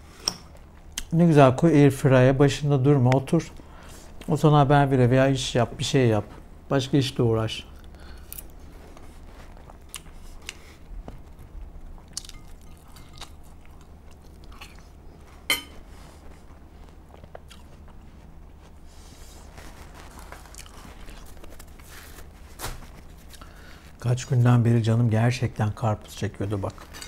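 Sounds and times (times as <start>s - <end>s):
chewing food: 7.7s - 18.8s, 19.5s - 22.2s.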